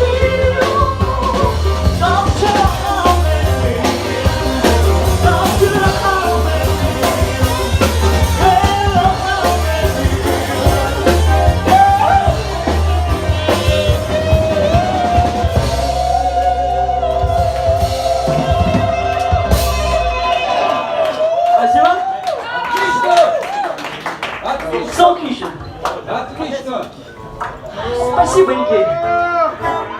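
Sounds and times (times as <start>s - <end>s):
person singing: 0.0s - 20.8s
guitar: 0.0s - 21.2s
bass guitar: 0.0s - 21.3s
drum kit: 0.0s - 21.4s.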